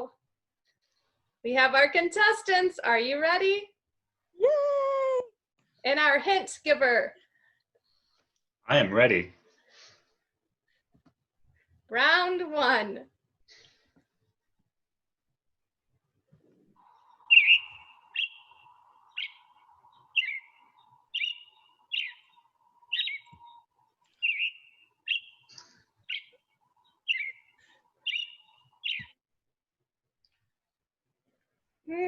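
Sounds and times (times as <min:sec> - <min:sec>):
bird chirping: 0:16.8 - 0:29.2.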